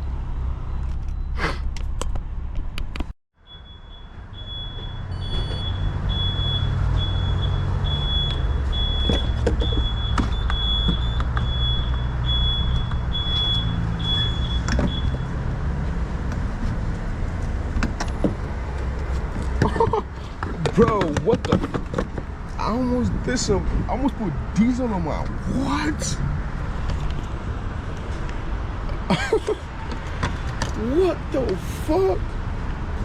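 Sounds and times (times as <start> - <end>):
vehicle rumble: 0.0 - 33.0
high-pitched electronic beeps: 3.4 - 15.3.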